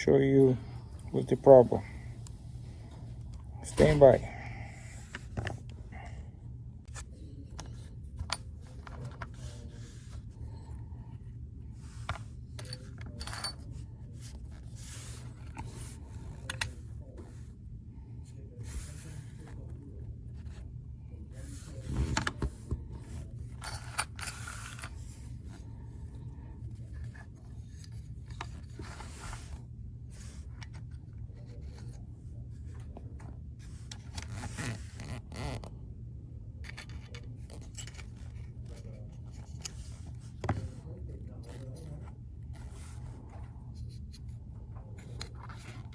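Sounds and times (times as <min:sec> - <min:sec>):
steady low hum: 0:00.0 - 0:45.9
clicks and scrapes of parts handled: 0:06.9 - 0:10.3, 0:11.8 - 0:16.8, 0:21.8 - 0:25.6, 0:36.6 - 0:40.8, 0:45.0 - 0:45.9.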